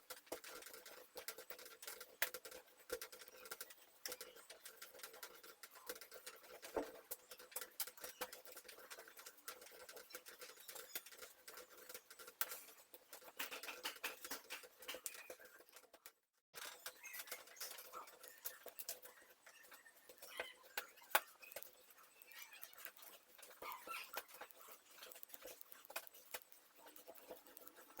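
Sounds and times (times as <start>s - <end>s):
hands kneading sticky dough: 17.0s - 28.0s.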